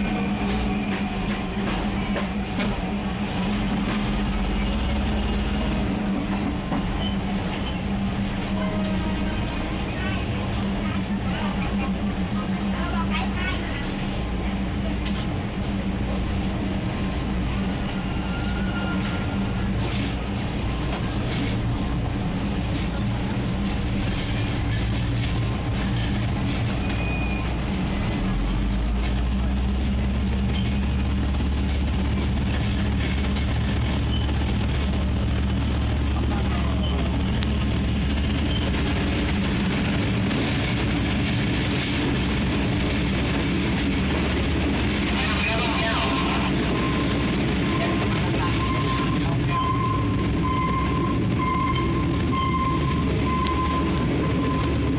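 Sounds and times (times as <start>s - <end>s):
train engine drone: 0.0s - 54.9s
brief high squeaks: 17.8s - 20.1s.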